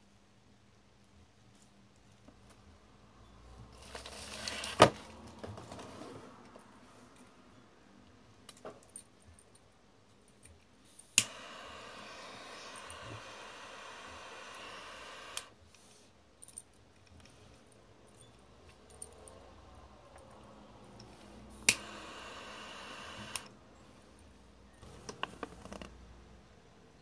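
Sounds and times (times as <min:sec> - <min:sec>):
gas torch hissing: 0:10.9 - 0:15.6, 0:21.0 - 0:23.6
piezo ignition click: 0:11.2 - 0:15.6, 0:21.0 - 0:23.5.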